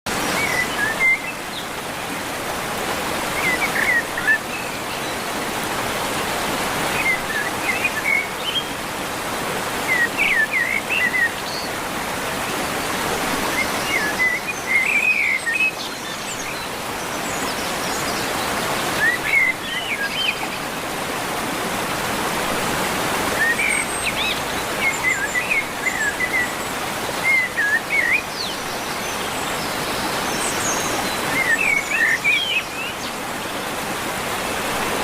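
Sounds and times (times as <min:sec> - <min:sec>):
rush of running water: 0:00.1 - 0:35.0
birds chirping: 0:09.6 - 0:35.0.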